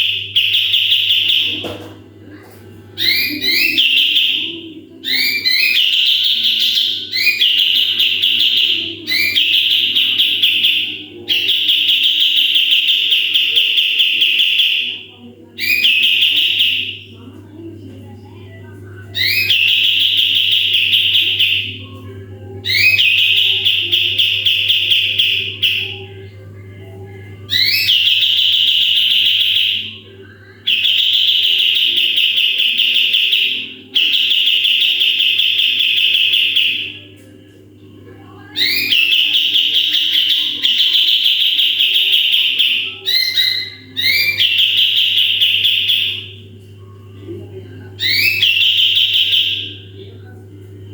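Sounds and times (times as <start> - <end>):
faint low hum: 0.0 - 50.9
songbird chattering trill: 3.0 - 15.0, 22.6 - 26.1, 38.6 - 46.4, 48.0 - 49.8.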